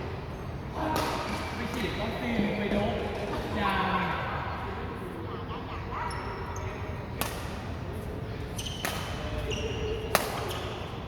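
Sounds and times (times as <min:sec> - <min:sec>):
faint shoe squeaks: 0:06.0 - 0:07.0, 0:08.5 - 0:11.0
racket striking shuttlecock: 0:07.2 - 0:07.6, 0:08.7 - 0:10.9.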